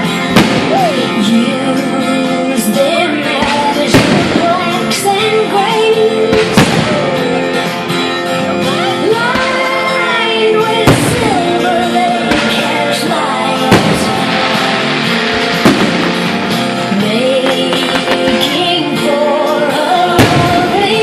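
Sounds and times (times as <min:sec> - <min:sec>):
song with singing and guitar: 0:00.0 - 0:21.0
firework bangs: 0:00.2 - 0:01.2, 0:03.4 - 0:05.0, 0:06.3 - 0:07.2, 0:10.8 - 0:11.4, 0:12.2 - 0:18.8, 0:20.2 - 0:21.0.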